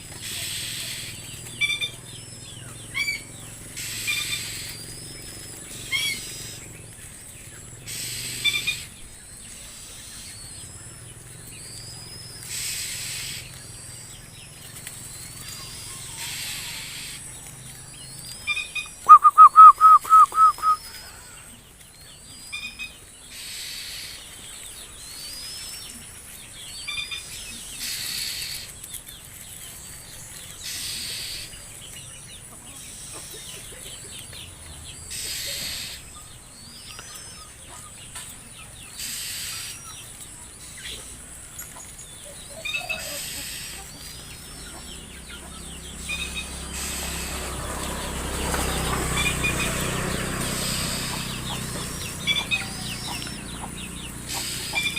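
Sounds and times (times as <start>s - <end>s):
bird chirping: 0.0s - 54.9s.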